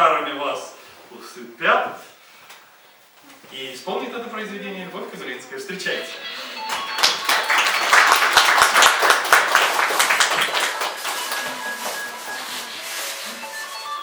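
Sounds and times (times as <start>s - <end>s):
audience applauding: 6.6s - 12.4s.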